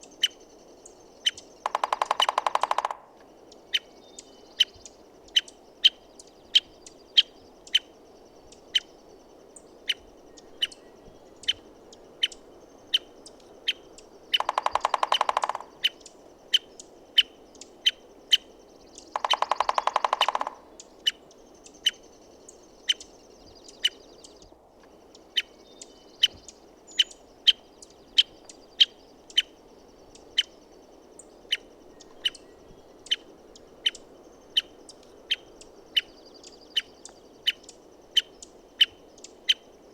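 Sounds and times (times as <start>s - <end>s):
woodpecker sharp call: 1.2s - 7.9s, 13.7s - 22.1s
woodpecker drumming on wood: 1.6s - 3.1s, 14.3s - 16.0s, 19.1s - 20.8s.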